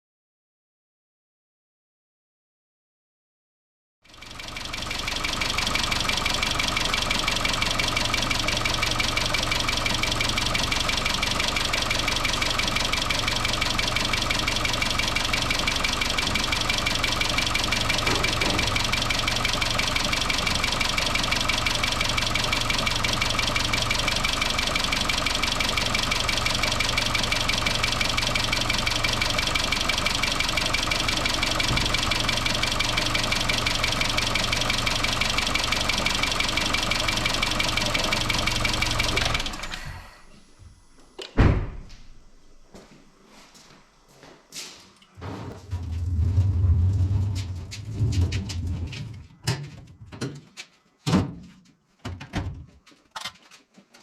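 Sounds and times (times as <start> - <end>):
car engine idling with fast rattle: 4.1 - 40.6.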